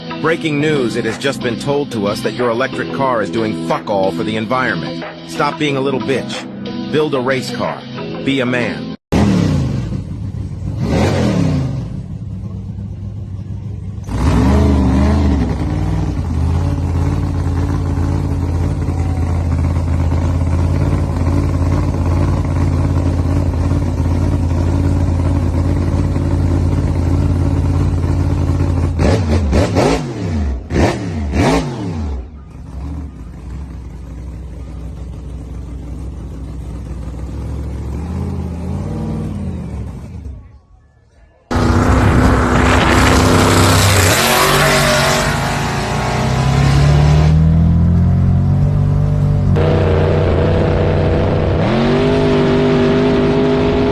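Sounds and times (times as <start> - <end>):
race car engine revving: 9.1 - 12.2, 13.9 - 33.8, 41.5 - 53.9.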